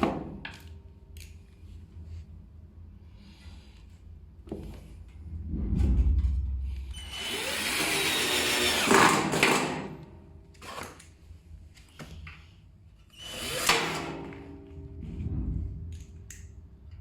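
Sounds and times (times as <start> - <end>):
power drill running: 7.0 - 9.9, 10.6 - 11.0, 13.1 - 14.0.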